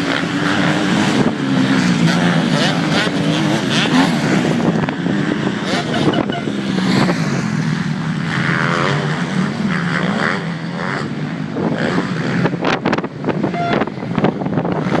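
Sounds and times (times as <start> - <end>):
motorbike engines revving: 0.0 - 15.0
wind buffeting microphone: 11.4 - 15.0.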